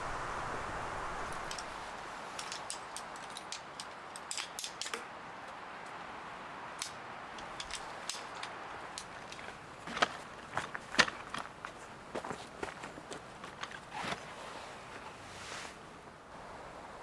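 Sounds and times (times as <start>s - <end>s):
faint background hiss: 0.0s - 17.0s.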